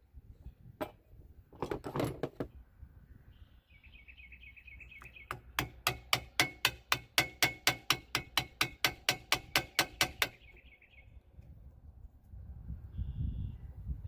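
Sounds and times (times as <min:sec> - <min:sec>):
hammer tapping on metal: 0:05.3 - 0:10.4.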